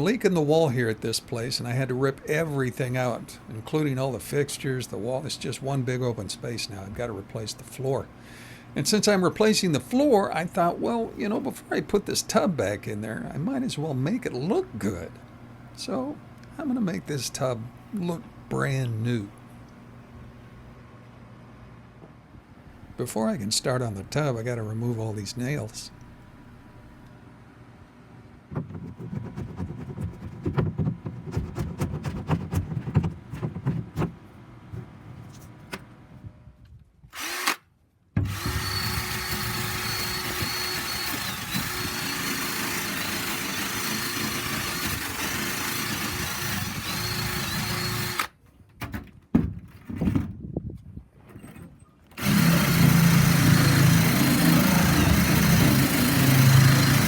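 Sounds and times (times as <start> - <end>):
power tool whining: 37.1 - 37.6, 38.2 - 48.3, 52.2 - 57.0.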